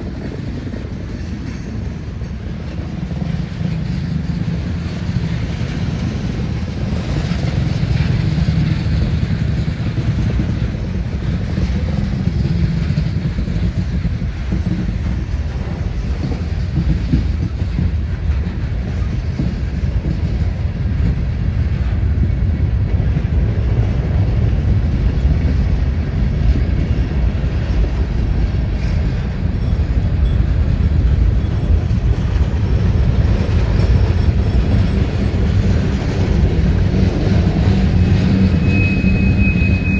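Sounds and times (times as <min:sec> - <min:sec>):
freight train rumbling past: 0:00.0 - 0:39.9
wheels clickety-clack: 0:00.0 - 0:39.9.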